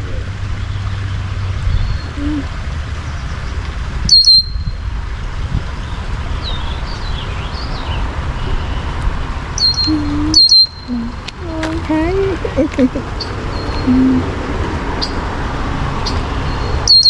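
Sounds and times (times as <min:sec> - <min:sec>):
songbird sharp high chirps: 0:04.1 - 0:04.8, 0:09.6 - 0:11.4, 0:12.8 - 0:14.4, 0:16.0 - 0:17.0
soft bird calls: 0:09.6 - 0:15.4, 0:16.0 - 0:17.0.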